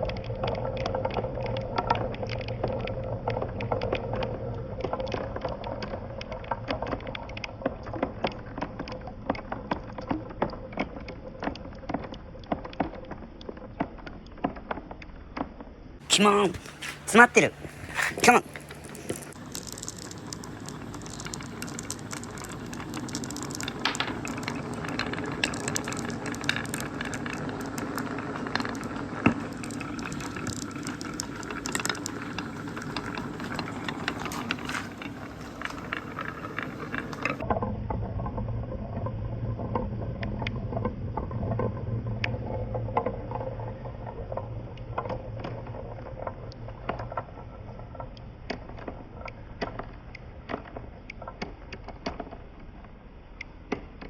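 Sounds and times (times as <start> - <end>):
marbles clacking along marble run: 0.0 - 15.5, 17.5 - 37.6
running water: 16.0 - 37.4
low hum: 16.5 - 51.0.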